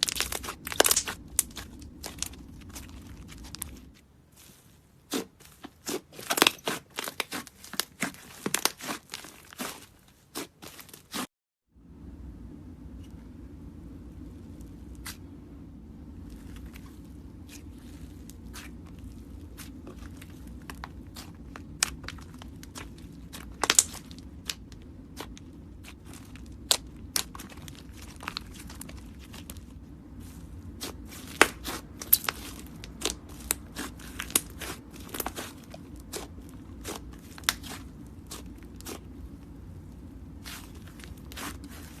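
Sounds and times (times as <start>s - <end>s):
slime crackling and popping: 0.0s - 3.8s, 5.1s - 11.2s, 17.5s - 29.7s, 30.7s - 39.4s, 40.0s - 42.0s
steady low hum: 0.0s - 11.1s, 11.7s - 42.0s.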